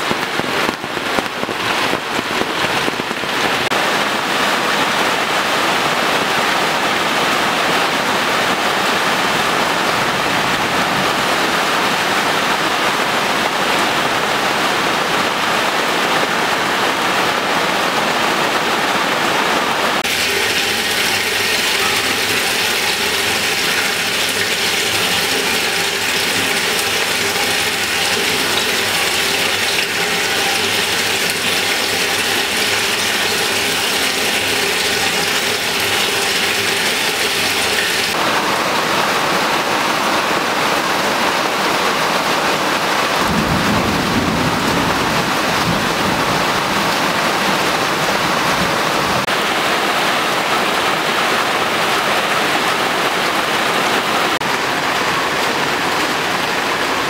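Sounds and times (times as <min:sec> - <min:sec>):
heavy rain on clay jars: 0:00.0 - 0:57.0
water pouring into a jar: 0:20.0 - 0:38.2.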